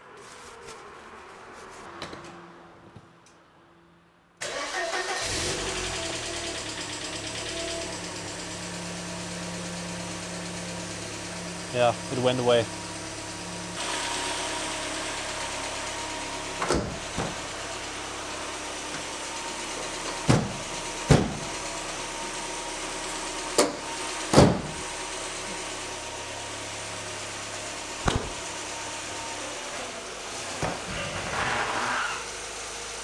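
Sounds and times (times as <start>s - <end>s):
car engine idling: 4.4s - 29.7s
short sharp knocks: 28.0s - 28.4s.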